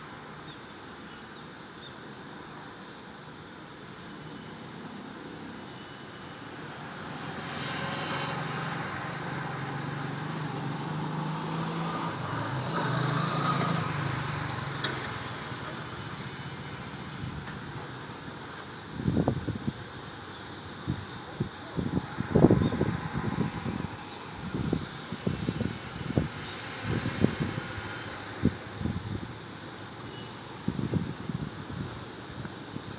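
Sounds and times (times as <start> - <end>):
road vehicle passing by: 6.3 - 18.6, 21.6 - 32.9.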